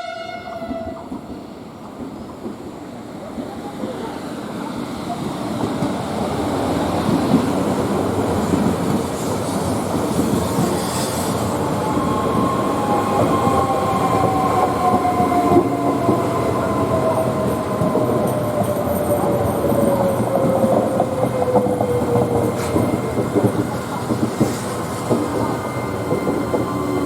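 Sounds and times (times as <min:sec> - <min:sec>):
train wheels clattering on rails: 0:04.8 - 0:27.0.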